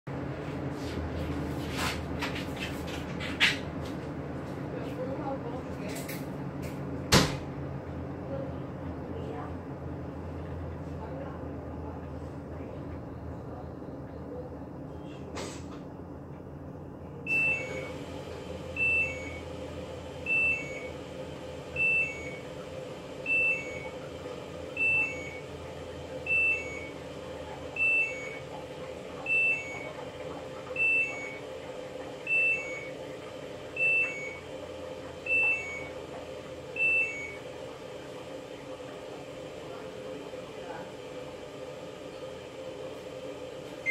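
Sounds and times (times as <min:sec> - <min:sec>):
washing machine two-note beep: 0:17.2 - 0:38.4.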